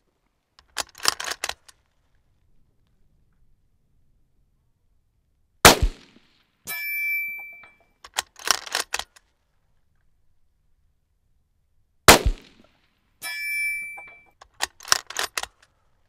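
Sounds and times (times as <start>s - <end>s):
rifle bolt clicks and clacks: 0.6s - 1.9s, 7.6s - 9.4s, 14.1s - 15.8s
rifle shot with echo: 5.6s - 6.3s, 12.1s - 12.7s
metallic ring: 6.7s - 8.0s, 13.2s - 14.4s.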